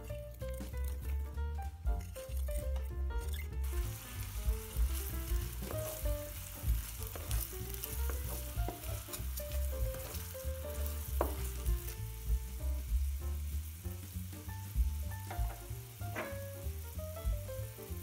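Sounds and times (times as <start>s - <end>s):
background music: 0.0s - 18.0s
onion sizzling in hot oil: 0.0s - 18.0s
wooden spatula stirring: 0.2s - 13.1s.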